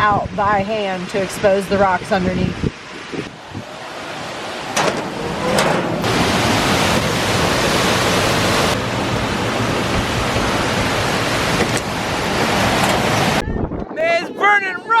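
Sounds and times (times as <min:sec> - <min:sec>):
waterfall rushing: 0:03.3 - 0:13.4.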